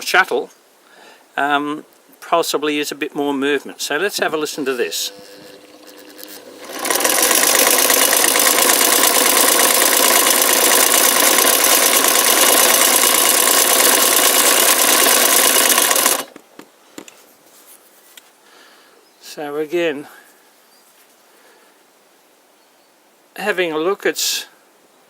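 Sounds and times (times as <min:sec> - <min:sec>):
sewing machine running fast: 0:04.6 - 0:16.3.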